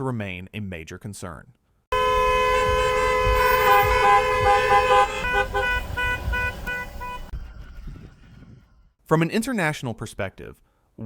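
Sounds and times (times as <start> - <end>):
car horns honking: 1.9 - 7.4
low traffic rumble: 1.9 - 8.1.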